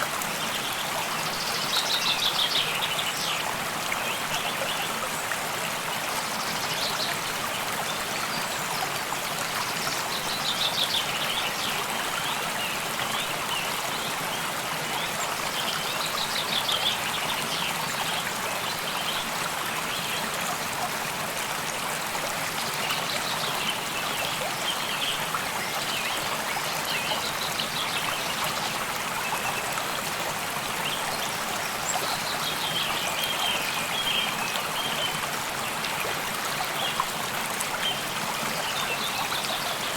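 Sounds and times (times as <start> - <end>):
stream flowing and trickling: 0.0 - 39.9.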